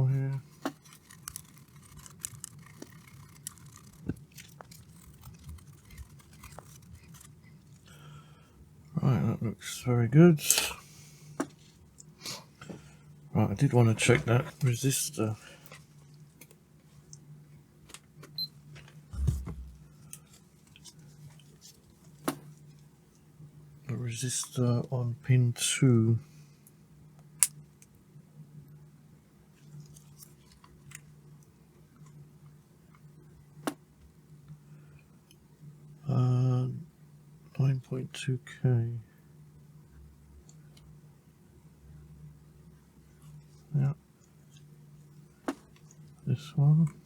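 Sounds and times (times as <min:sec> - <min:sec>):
faint steady hum: 0:00.0 - 0:47.0
brush scrubbing circuit board: 0:00.5 - 0:07.7
dull thump on workbench: 0:19.2 - 0:19.8.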